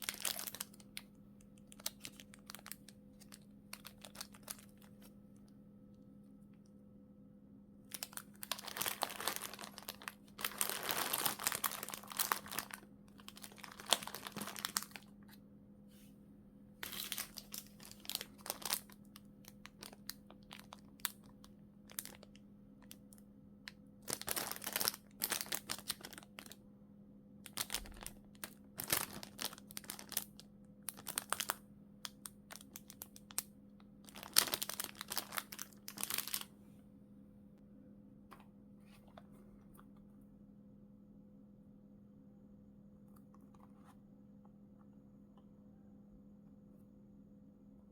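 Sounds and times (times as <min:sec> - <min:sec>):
plastic bags crinkling: 0:00.0 - 0:05.1, 0:07.9 - 0:15.3, 0:16.8 - 0:23.0, 0:24.0 - 0:26.6, 0:27.5 - 0:31.6, 0:32.3 - 0:33.4, 0:34.0 - 0:36.5
faint steady hum: 0:00.0 - 0:47.9.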